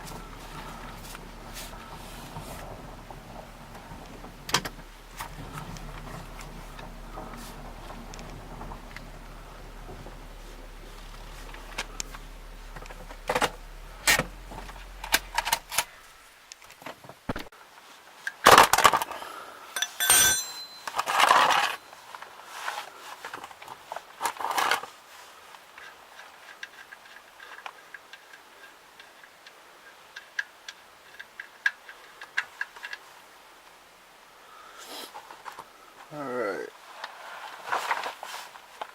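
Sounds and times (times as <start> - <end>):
tools clicking and clinking: 19.8 - 21.8.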